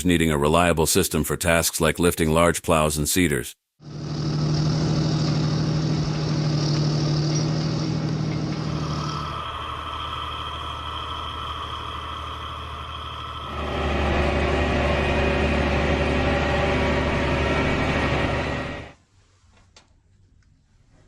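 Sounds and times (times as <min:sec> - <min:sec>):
tractor diesel engine running: 0:03.8 - 0:19.0.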